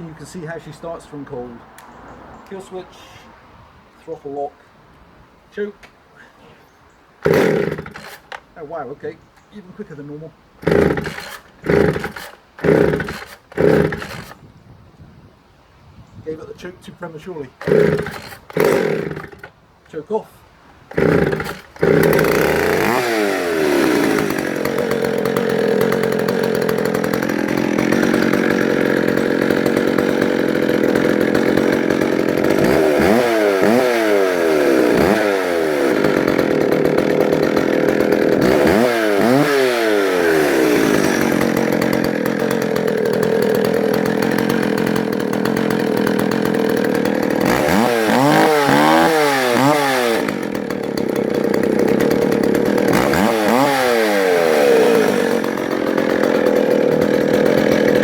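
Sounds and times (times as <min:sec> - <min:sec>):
two-stroke chainsaw revving: 0:07.2 - 0:08.5, 0:10.6 - 0:14.4, 0:17.5 - 0:19.6, 0:20.9 - 0:58.0.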